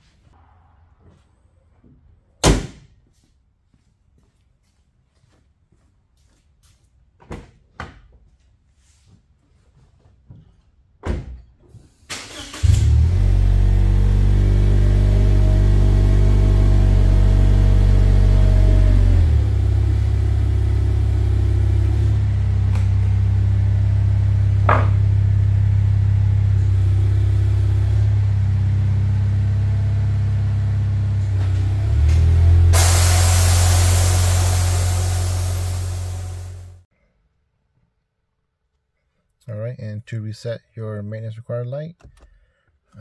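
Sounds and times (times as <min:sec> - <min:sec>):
car engine starting and idling: 0:12.1 - 0:36.9
knocks: 0:24.7 - 0:25.0.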